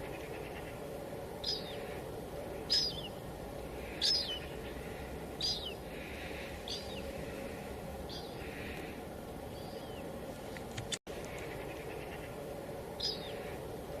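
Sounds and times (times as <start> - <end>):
bird chirping: 0.0 - 3.2, 3.8 - 10.1, 13.0 - 13.6.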